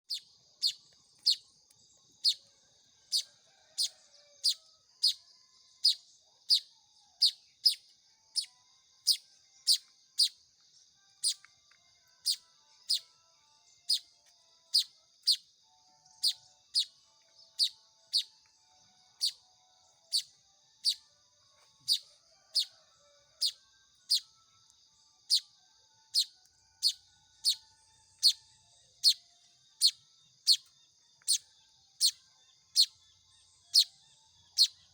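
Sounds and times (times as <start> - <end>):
bird chick chirping: 0.0 - 1.5, 2.2 - 2.5, 3.1 - 5.2, 5.8 - 7.8, 9.1 - 10.4, 14.7 - 15.4, 16.2 - 17.0, 17.6 - 18.4, 21.8 - 22.8, 23.4 - 24.3, 26.1 - 27.6, 28.2 - 28.4, 29.0 - 29.2, 29.8 - 33.0, 33.6 - 34.9.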